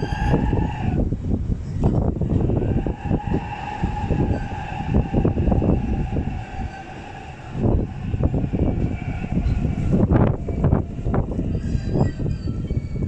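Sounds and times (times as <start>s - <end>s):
train running with whine: 0.0s - 13.0s
wind on microphone: 0.0s - 13.0s.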